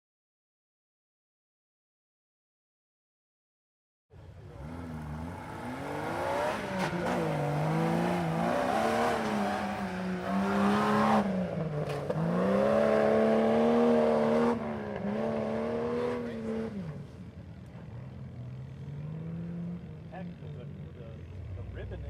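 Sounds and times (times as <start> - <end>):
truck engine revving: 4.4 - 17.1.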